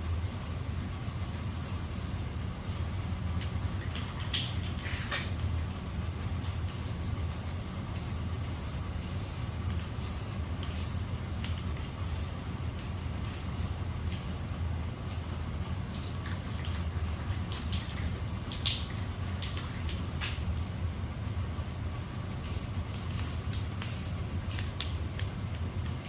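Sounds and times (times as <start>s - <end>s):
spray paint can hissing: 0.0s - 3.2s, 6.7s - 11.1s, 12.2s - 13.8s, 22.4s - 24.8s
steady low hum: 0.0s - 26.0s.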